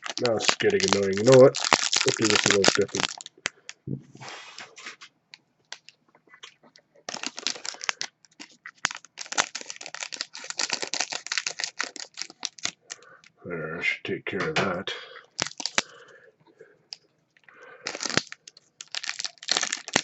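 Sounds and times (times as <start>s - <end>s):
plastic packaging crinkling: 0.0s - 3.8s, 5.7s - 13.3s, 15.2s - 16.0s, 17.4s - 20.0s.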